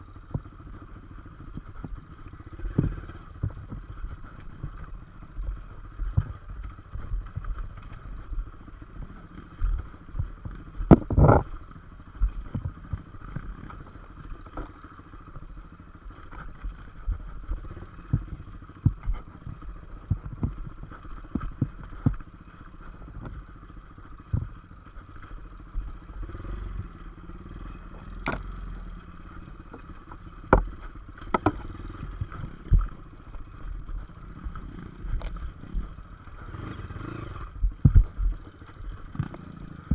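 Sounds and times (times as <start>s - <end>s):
motorcycle engine running: 0.0s - 39.9s
knocks and clatter: 29.6s - 34.0s.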